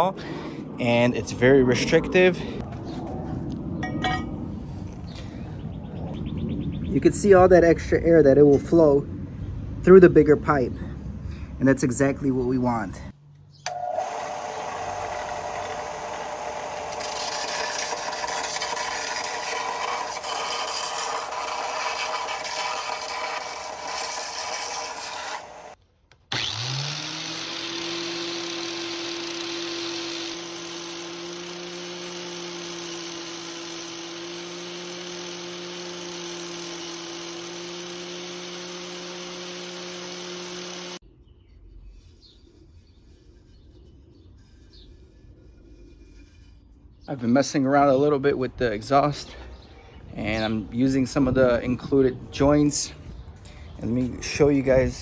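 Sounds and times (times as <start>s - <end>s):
power tool motor running: 13.6s - 41.0s.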